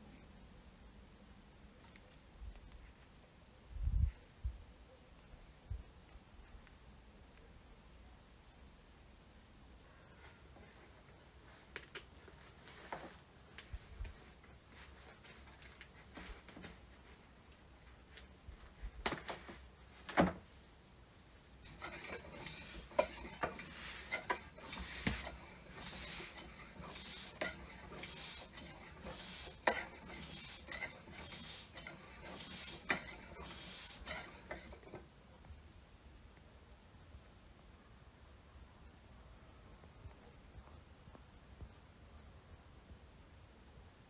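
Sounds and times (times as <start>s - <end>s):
hand air pump clicking and hissing: 21.7s - 35.0s.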